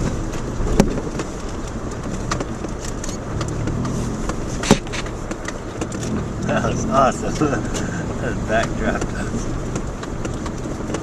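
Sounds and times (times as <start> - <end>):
clicks and rattles on gravel: 0.0 - 8.0
car engine running steadily: 0.0 - 11.0.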